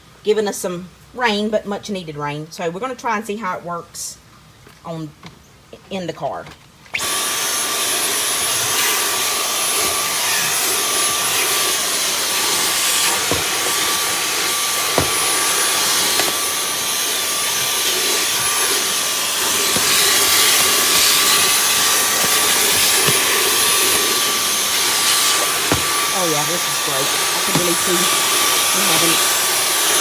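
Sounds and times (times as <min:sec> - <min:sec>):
cordless vacuum whining: 0:07.0 - 0:30.0.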